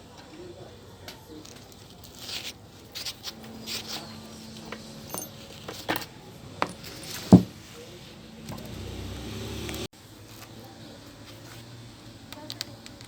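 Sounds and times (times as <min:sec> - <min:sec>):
hard objects clicking and knocking: 0:04.7 - 0:07.6
loud thump: 0:06.6 - 0:07.6.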